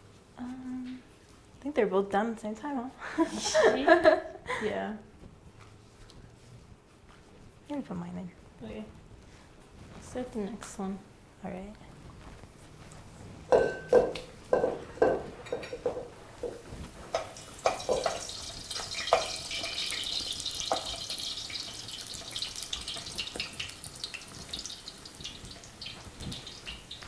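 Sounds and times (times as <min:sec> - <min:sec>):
dough sizzling in hot oil: 0:12.2 - 0:27.0
cookware knocking and clattering: 0:13.5 - 0:24.6.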